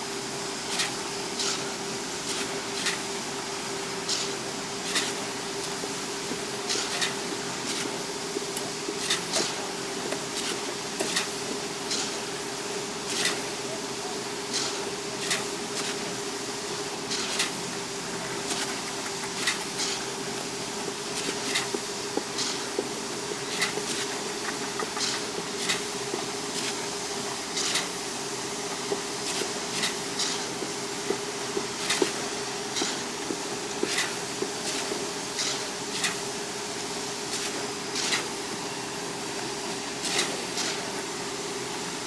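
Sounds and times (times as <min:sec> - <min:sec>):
sharp clicks and knocks: 0:23.6 - 0:26.2.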